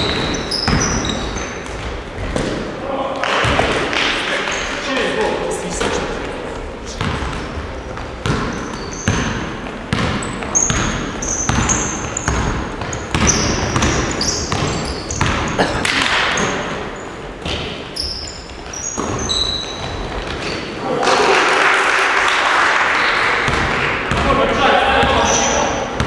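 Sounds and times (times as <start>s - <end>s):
sneakers squeaking on court: 0.0s - 2.7s, 5.9s - 20.8s, 25.0s - 26.0s
basketballs bouncing on gym floor: 0.0s - 4.7s, 5.8s - 20.8s, 23.4s - 26.0s.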